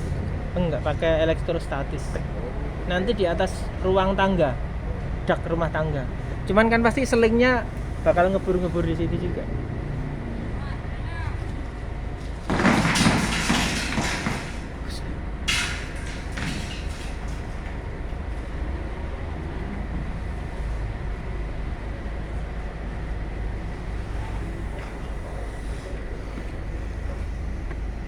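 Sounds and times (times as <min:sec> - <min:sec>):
diesel truck engine rumbling: 0:00.0 - 0:28.0
loud noisy bursts: 0:12.4 - 0:17.4.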